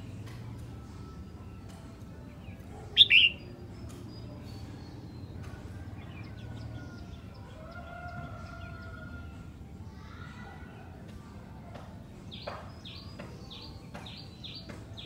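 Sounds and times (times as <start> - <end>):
faint bird notes: 2.5 - 5.8
bird two-note call: 3.0 - 3.4.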